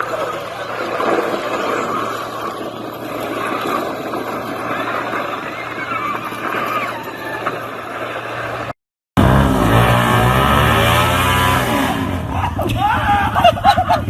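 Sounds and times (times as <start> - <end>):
motorcycle engine running: 9.2 - 12.6.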